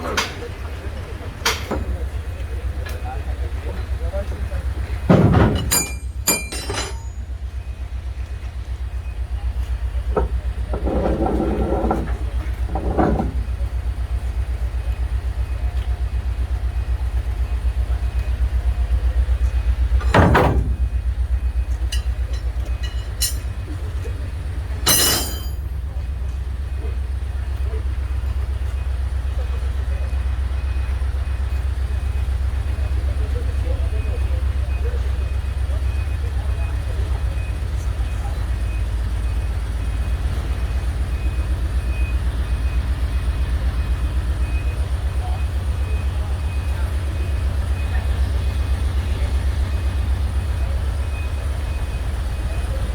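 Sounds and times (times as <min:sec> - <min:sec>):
large vehicle engine throbbing: 0:00.0 - 0:52.9.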